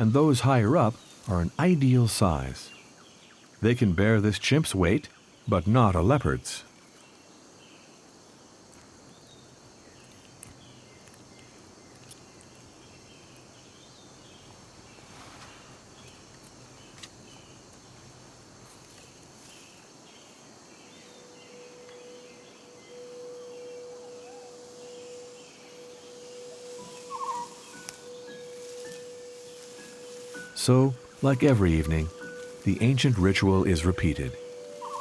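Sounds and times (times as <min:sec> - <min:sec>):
insects trilling: 0:00.0 - 0:35.0
small chirping calls: 0:19.0 - 0:35.0
low held background music note: 0:21.0 - 0:35.0.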